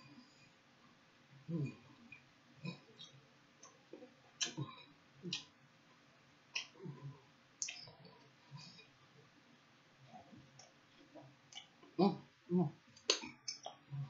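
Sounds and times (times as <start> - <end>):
sharp mouth clicks: 4.4 - 4.7, 5.3 - 5.5, 6.6 - 6.9, 7.6 - 7.9, 13.0 - 13.8
chewing with wet lip smacks: 10.1 - 12.0.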